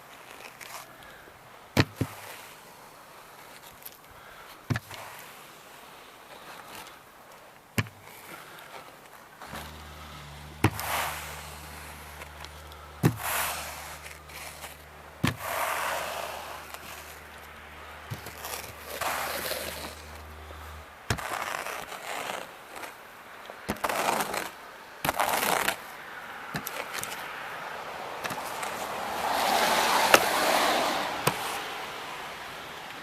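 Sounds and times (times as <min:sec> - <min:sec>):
brush sweeping snow: 0:02.0 - 0:23.1, 0:23.7 - 0:25.9, 0:28.2 - 0:32.0
low steady hum: 0:09.3 - 0:21.4.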